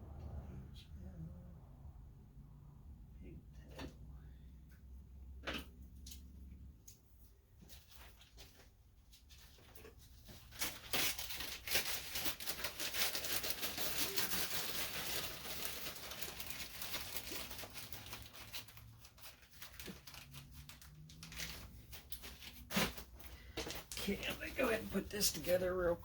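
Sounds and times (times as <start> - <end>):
plastic bag crinkling: 9.8 - 26.0.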